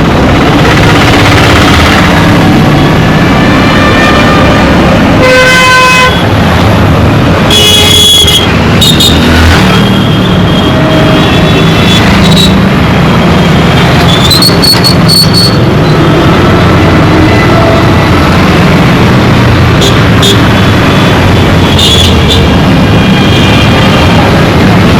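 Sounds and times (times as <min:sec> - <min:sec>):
dense rumble of engines: 0:00.0 - 0:24.9
horns honking: 0:03.2 - 0:06.4, 0:07.5 - 0:12.7.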